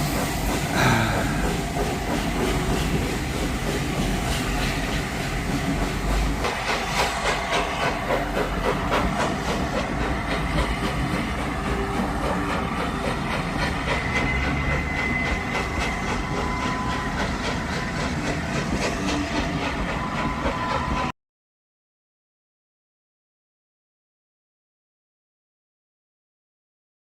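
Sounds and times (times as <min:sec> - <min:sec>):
train wheels clicking over rail joints: 0:00.0 - 0:21.1.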